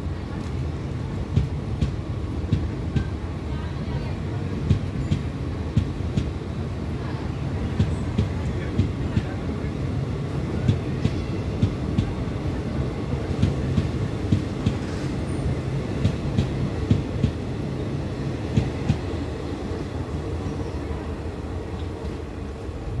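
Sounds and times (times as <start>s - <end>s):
train coaches rumbling past: 0.0s - 23.0s.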